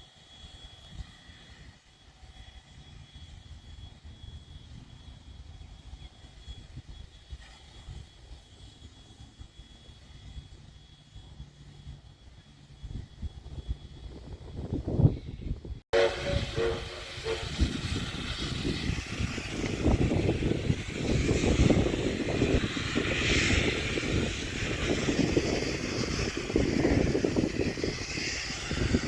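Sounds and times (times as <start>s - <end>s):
steam locomotive running: 5.7s - 29.0s
locomotive whistle chord: 16.0s - 17.9s
steam hiss: 16.0s - 29.0s.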